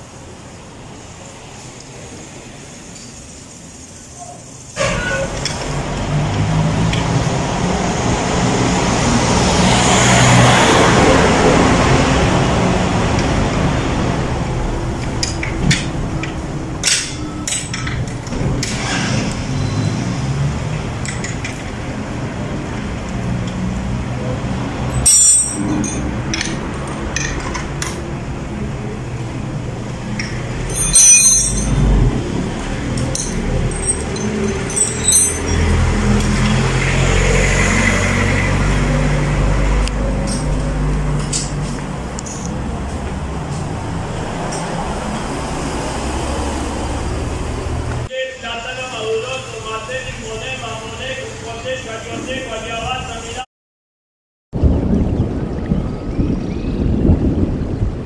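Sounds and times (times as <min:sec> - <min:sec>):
traffic noise: 0:00.0 - 0:53.5, 0:54.6 - 0:58.0
vehicle passing: 0:04.8 - 0:17.4, 0:18.1 - 0:48.1
clinks and knocks: 0:15.0 - 0:18.8, 0:24.9 - 0:28.0, 0:30.1 - 0:32.0, 0:32.9 - 0:36.5.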